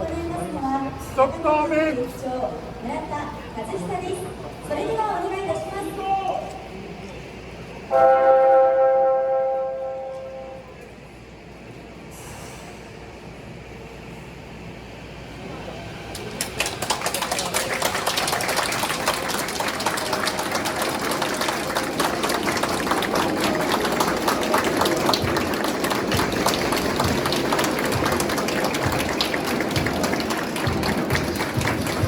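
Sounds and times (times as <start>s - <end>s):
crowd applauding: 16.1s - 32.0s.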